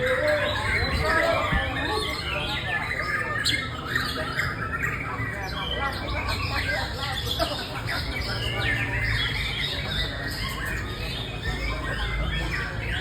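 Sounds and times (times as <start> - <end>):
bird singing rapid notes: 0.0 - 13.0.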